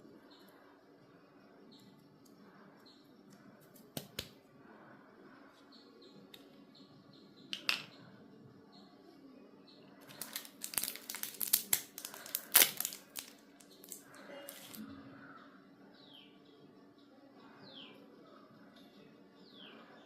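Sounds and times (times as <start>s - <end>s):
plastic packaging crinkling and tearing: 10.1s - 14.8s.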